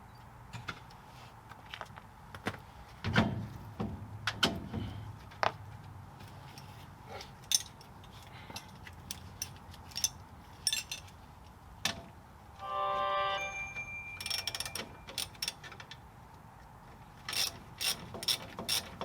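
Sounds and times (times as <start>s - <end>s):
metallic clinks of hand tools: 13.9s - 15.7s.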